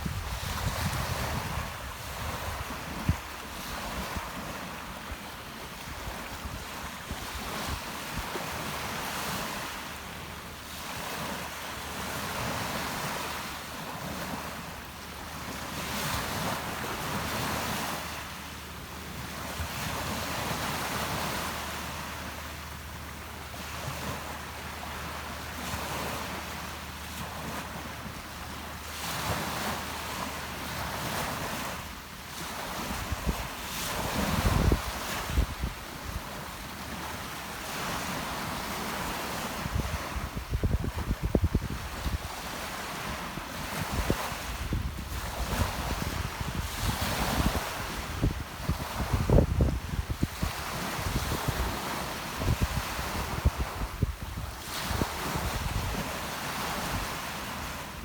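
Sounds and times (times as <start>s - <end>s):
wind buffeting microphone: 0.0s - 4.6s, 32.7s - 37.0s, 39.5s - 42.4s, 43.1s - 57.8s
waves breaking on shore: 0.0s - 58.0s.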